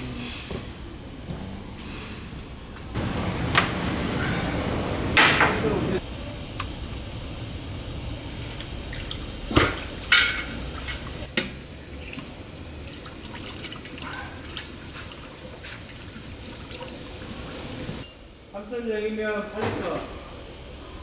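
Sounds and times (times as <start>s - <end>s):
oil dripping and trickling: 2.7s - 18.0s.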